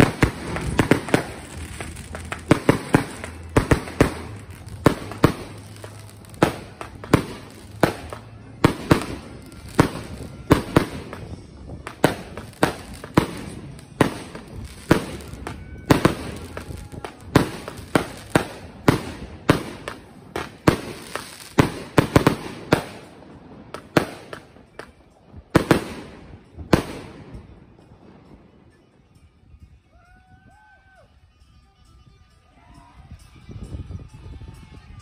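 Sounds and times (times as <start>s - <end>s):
wind rumbling on microphone: 0.0s - 23.7s, 29.2s - 35.0s
fireworks launching and bursting: 0.0s - 27.8s.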